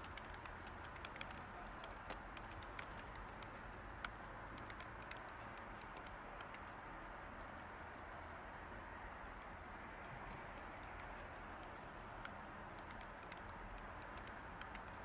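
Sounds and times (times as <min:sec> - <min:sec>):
computer keyboard typing: 0:00.0 - 0:06.8, 0:10.3 - 0:15.0
white noise hiss: 0:00.0 - 0:15.0.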